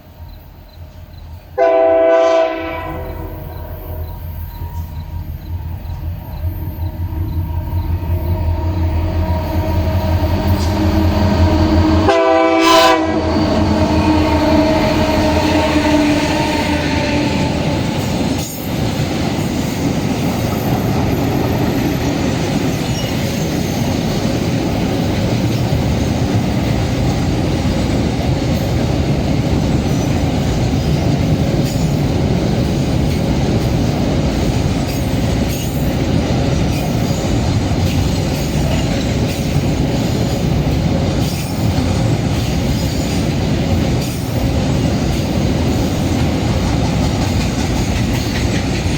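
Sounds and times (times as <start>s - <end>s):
diesel locomotive engines: 0.0s - 48.9s
train horn blast: 1.4s - 5.1s, 6.8s - 18.1s
wagon wheels clattering on rail: 17.4s - 48.9s.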